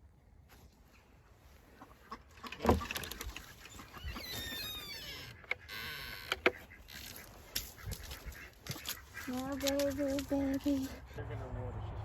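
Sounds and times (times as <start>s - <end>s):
chickens squawking: 3.2s - 11.3s.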